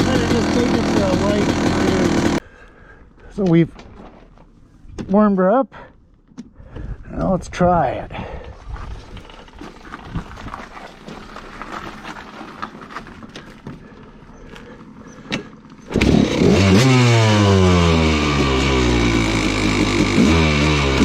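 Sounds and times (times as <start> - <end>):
dirt bike engine: 0.0 - 3.0, 8.7 - 21.0.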